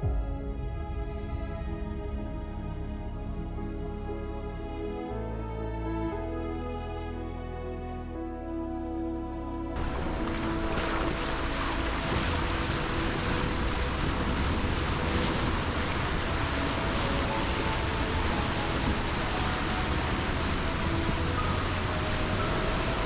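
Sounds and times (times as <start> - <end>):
faint background music: 0.0 - 23.0
tyre and wind noise: 9.8 - 23.0.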